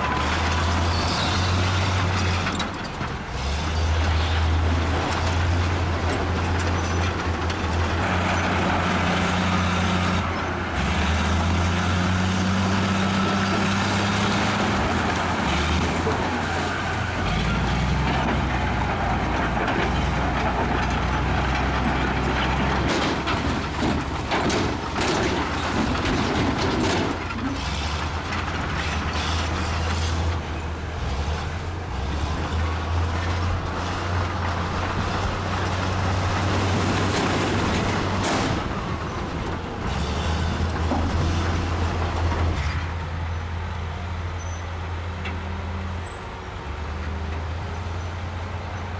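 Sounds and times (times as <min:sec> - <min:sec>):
bulldozer diesel engine: 0:00.0 - 0:48.9
knocks and clatter: 0:17.7 - 0:30.5, 0:31.2 - 0:42.8.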